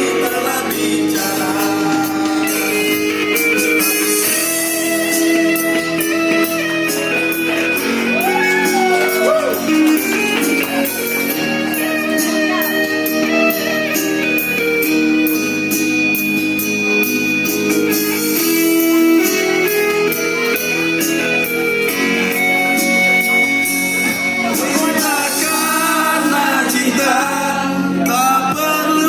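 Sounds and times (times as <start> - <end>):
person singing: 0.0 - 14.0, 23.7 - 29.0
guitar: 0.0 - 29.0
held keyboard notes: 0.0 - 29.0.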